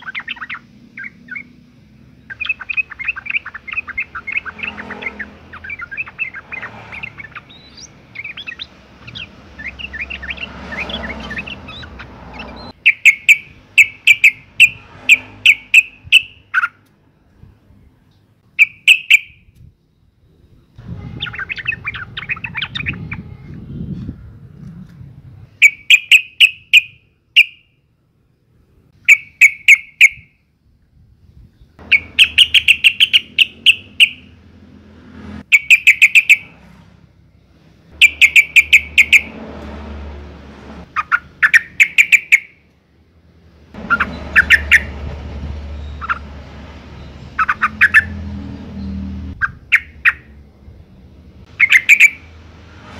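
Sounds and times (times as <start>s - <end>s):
bird chattering call: 0.0s - 1.6s, 2.2s - 16.8s, 18.6s - 19.4s, 31.8s - 34.3s, 35.5s - 36.5s, 38.0s - 39.4s, 40.9s - 42.6s, 43.8s - 45.0s, 45.8s - 46.3s, 47.3s - 48.2s, 49.3s - 50.4s, 51.5s - 52.3s.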